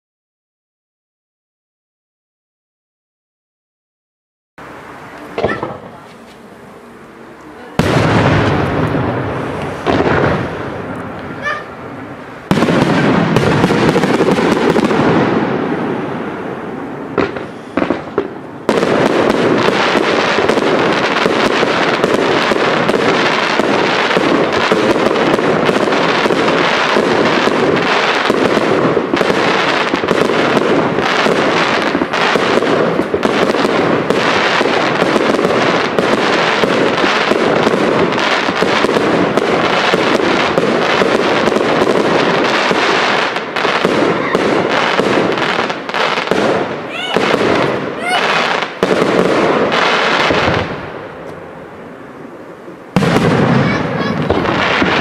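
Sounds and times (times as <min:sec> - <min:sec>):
fireworks barrage of bangs: 0:04.6 - 0:07.0, 0:07.6 - 0:55.0.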